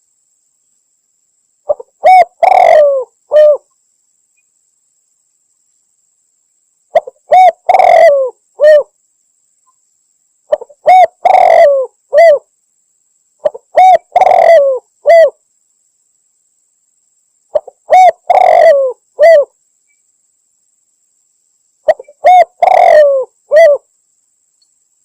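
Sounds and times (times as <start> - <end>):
dove cooing: 1.7 - 3.7, 6.9 - 8.9, 10.5 - 12.4, 13.4 - 15.4, 17.5 - 19.5, 21.8 - 23.9.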